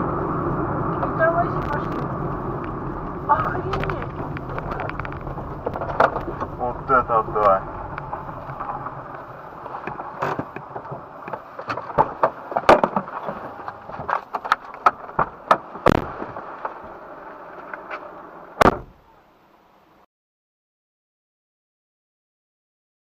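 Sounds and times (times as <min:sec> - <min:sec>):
steady background noise: 0:00.0 - 0:20.1
firecrackers banging and popping: 0:11.6 - 0:16.6.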